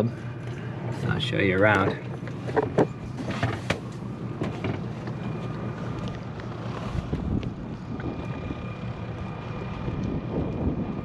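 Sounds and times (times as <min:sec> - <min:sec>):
wind buffeting microphone: 0:05.9 - 0:11.0.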